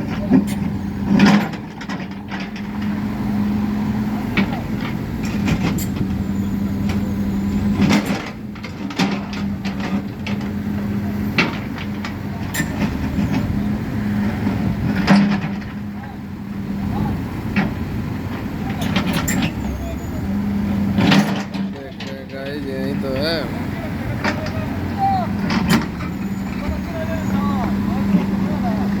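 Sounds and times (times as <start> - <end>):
construction machine engine running: 0.0 - 29.0
scrapes and knocks on road surface: 7.7 - 13.6.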